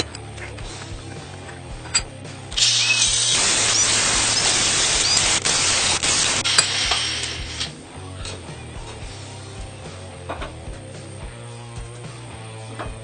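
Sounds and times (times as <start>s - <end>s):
quiet background music: 0.0s - 13.0s
workshop tool hissing: 2.4s - 7.8s.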